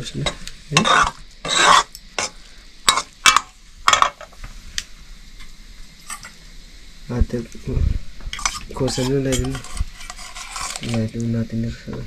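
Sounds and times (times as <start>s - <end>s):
metal spoon scraping metal pot: 0.7s - 2.3s, 8.4s - 11.1s.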